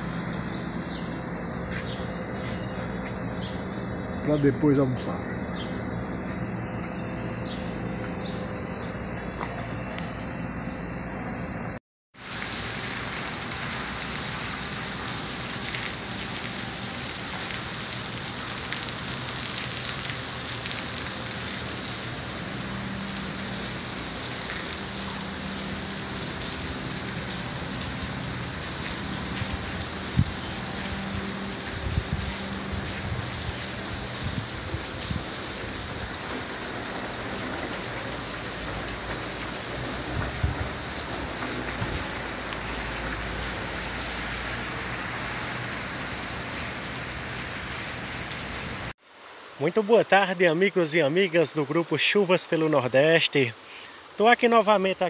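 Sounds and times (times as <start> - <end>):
steady rain falling: 12.2 - 55.0.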